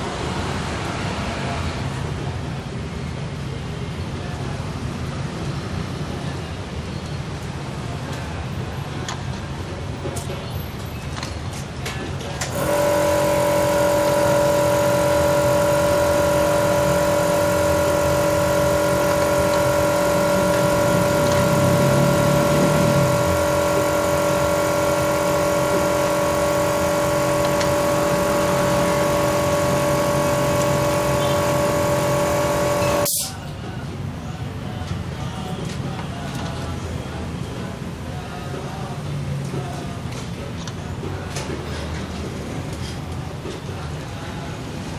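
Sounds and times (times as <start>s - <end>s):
car engine running steadily: 12.4s - 33.3s.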